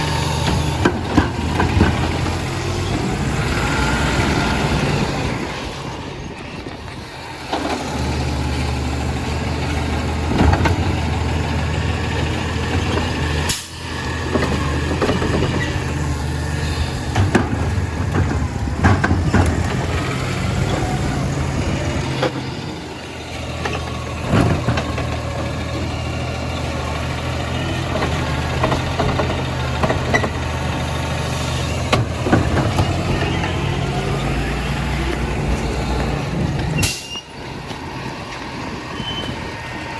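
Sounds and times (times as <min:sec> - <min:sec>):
truck engine running: 0:00.0 - 0:39.9
clanks and knocks: 0:00.4 - 0:03.0, 0:10.3 - 0:11.3, 0:12.6 - 0:16.1, 0:17.1 - 0:22.6, 0:23.6 - 0:25.6, 0:27.7 - 0:30.8, 0:31.8 - 0:33.7.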